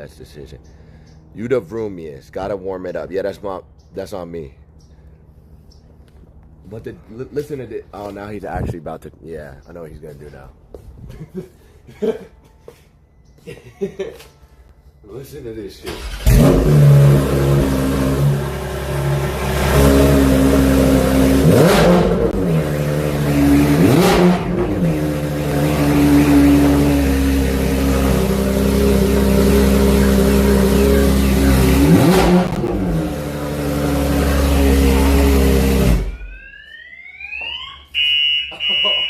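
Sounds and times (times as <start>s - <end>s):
car engine idling high: 15.9s - 36.4s
engine revving: 15.9s - 36.5s.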